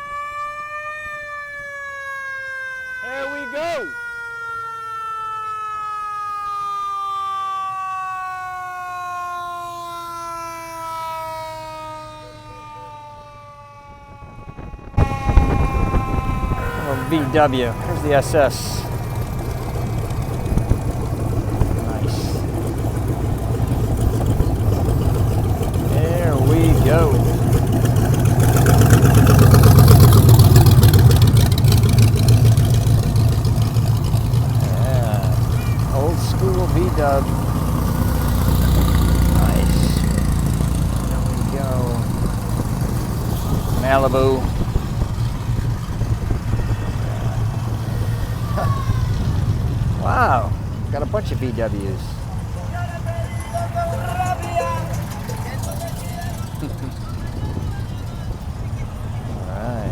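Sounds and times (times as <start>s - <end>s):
siren winding down: 0.0s - 45.2s
car engine running: 15.0s - 59.9s.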